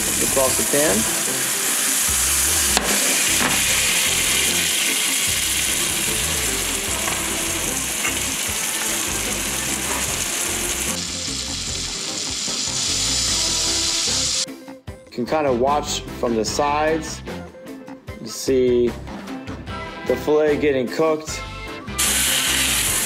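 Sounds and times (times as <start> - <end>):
fish frying in butter: 0.0 - 14.4, 22.0 - 23.0.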